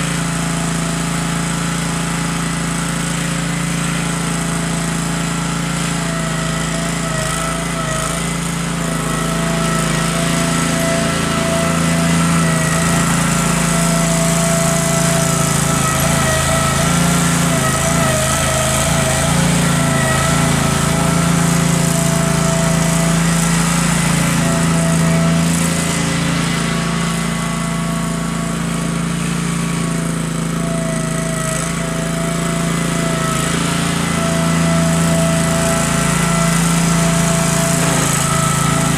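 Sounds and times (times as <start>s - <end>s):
garden tractor engine running: 0.0s - 38.9s.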